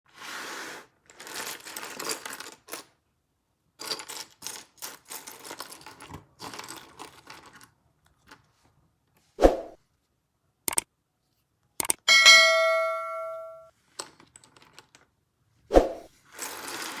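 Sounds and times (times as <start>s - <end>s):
plastic bricks clicking and clattering: 1.0s - 3.0s, 3.8s - 8.5s, 13.8s - 15.2s, 16.3s - 17.0s.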